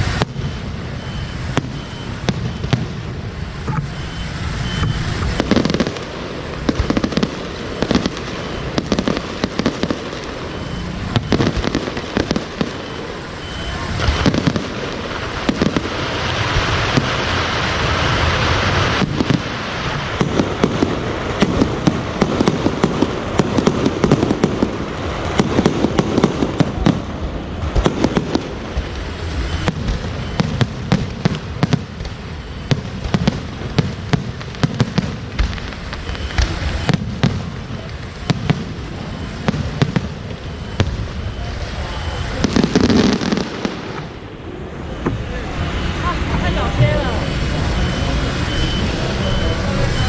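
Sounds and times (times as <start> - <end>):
fireworks crackling and banging: 0.0 - 50.0
steady hiss: 0.0 - 50.0.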